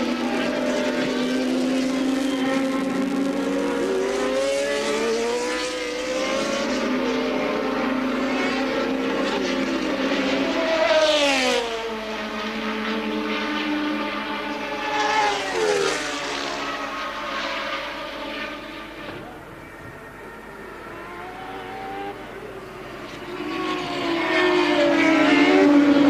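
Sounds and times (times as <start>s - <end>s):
racing car engines: 0.0s - 26.0s
racing car passing by: 0.0s - 26.0s.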